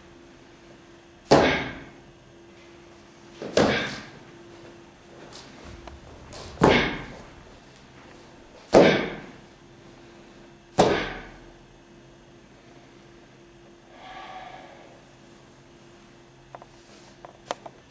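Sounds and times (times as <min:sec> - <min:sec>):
sharp forceful exhalations: 0:13.9 - 0:15.0.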